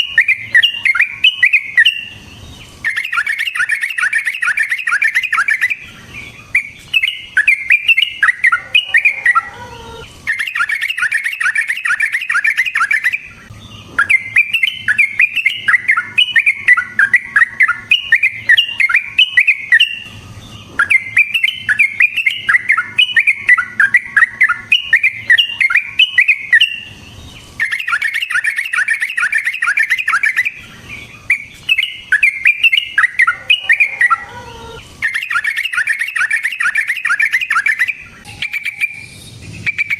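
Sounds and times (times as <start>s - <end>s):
bird singing chattering runs: 0.0s - 39.9s.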